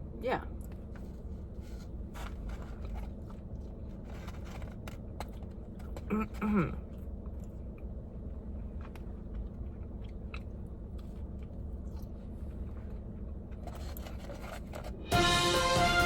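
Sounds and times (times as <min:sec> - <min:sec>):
person chewing crunchy food: 0:02.7 - 0:14.5.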